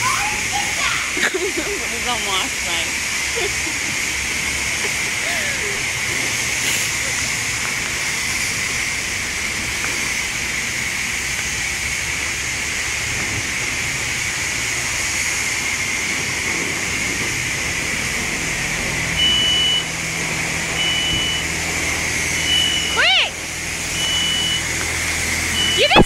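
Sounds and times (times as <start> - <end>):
pressure washer spraying water: 0.0 - 26.0
high electronic beep: 19.2 - 19.9, 20.8 - 21.5, 22.4 - 23.0, 24.0 - 24.7, 25.5 - 26.0.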